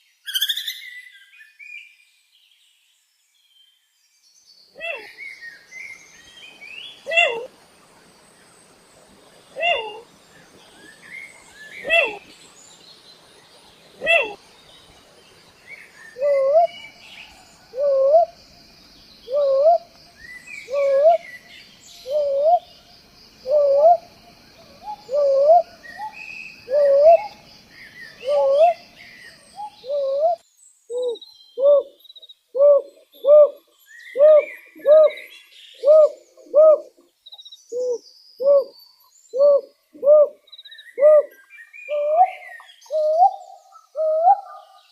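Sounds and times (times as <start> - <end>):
owl hooting: 7.0 - 7.6, 9.6 - 10.1, 11.8 - 12.3, 14.0 - 14.4, 16.2 - 16.8, 17.7 - 18.4, 19.3 - 19.9, 20.7 - 21.2, 22.0 - 22.7, 23.4 - 24.1, 24.8 - 27.4, 28.2 - 28.8, 29.6 - 32.0, 32.6 - 33.6, 34.2 - 35.2, 35.8 - 36.9, 39.4 - 40.4, 41.0 - 44.7.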